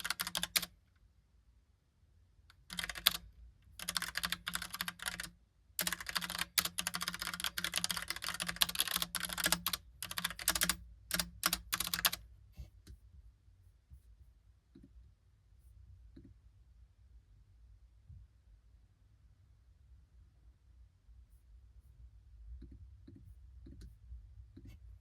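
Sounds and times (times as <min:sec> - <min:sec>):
mechanical keyboard typing: 0:00.0 - 0:00.7, 0:02.5 - 0:12.2.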